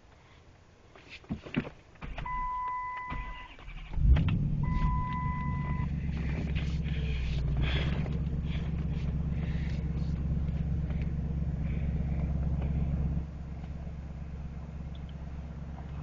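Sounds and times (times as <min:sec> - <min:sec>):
car engine cranking and idling: 0:02.0 - 0:16.0.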